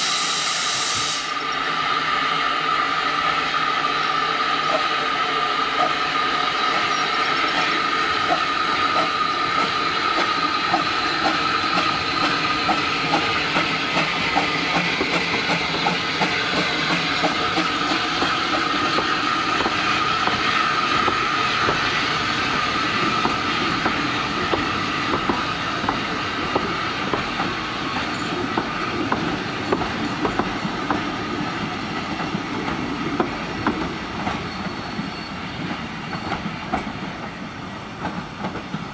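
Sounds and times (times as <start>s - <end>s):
train wheels clicking over rail joints: 7.5s - 37.3s.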